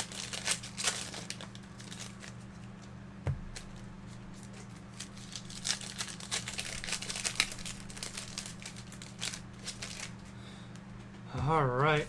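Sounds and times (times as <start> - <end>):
wrappers crinkling and tearing: 0.0 - 2.9, 3.5 - 10.3.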